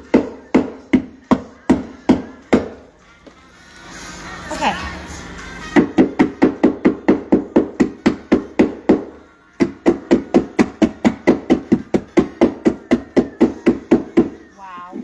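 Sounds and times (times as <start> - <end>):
rapid knocking on hard surface: 5.8 - 14.4.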